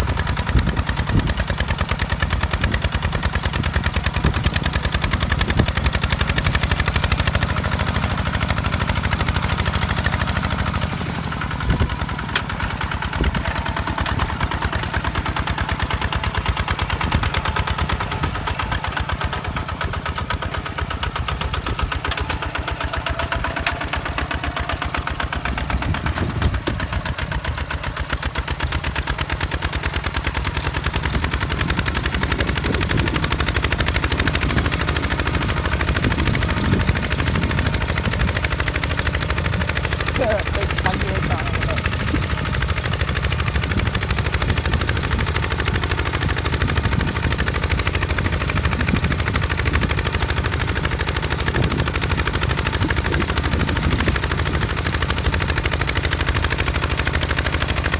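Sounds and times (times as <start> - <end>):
diesel tractor engine chugging: 0.0 - 57.9.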